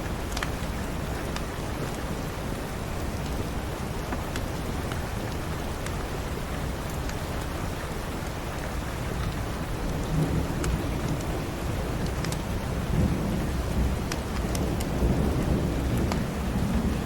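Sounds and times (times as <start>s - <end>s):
steady rain: 0.0s - 17.0s
low rumble of thunder: 9.1s - 17.0s.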